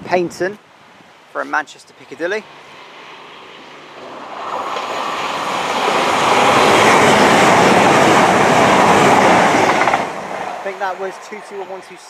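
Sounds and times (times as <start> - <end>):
train rushing past: 2.2 - 12.0.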